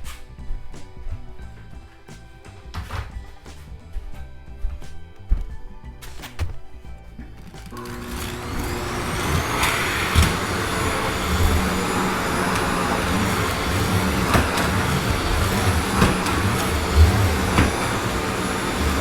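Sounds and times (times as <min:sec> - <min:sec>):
vacuum cleaner running: 0:07.7 - 0:19.0.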